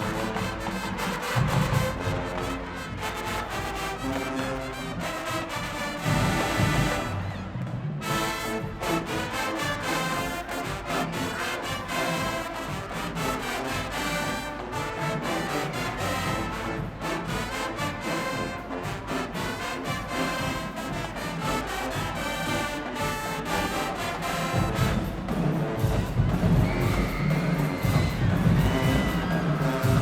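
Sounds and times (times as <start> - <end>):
brass melody: 0.0 - 30.0
marching band percussion: 0.0 - 30.0.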